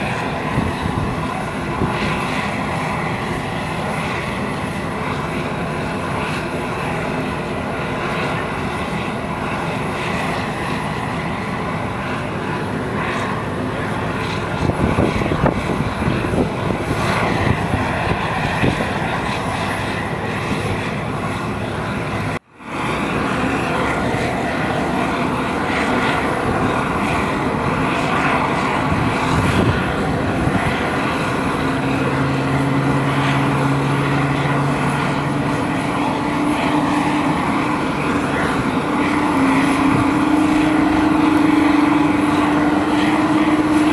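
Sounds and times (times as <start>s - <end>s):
aircraft engines running: 0.0s - 43.9s
low drone rising in pitch: 9.9s - 43.9s.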